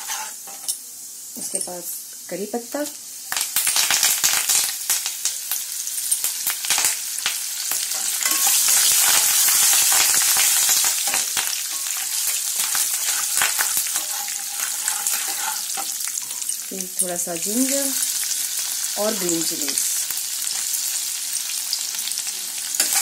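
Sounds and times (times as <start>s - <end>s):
spatula stirring: 0.0s - 0.7s, 7.9s - 16.6s, 22.8s - 23.0s
leaves and nuts sizzling in oil: 0.0s - 23.0s.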